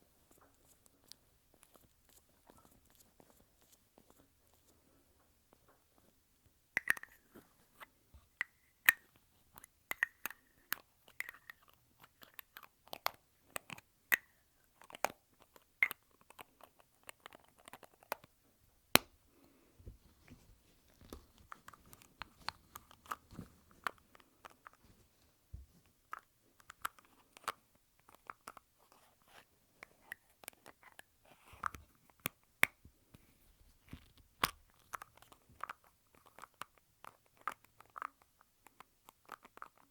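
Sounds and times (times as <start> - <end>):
lipstick caps clicking: 6.8 - 7.2, 9.9 - 15.1.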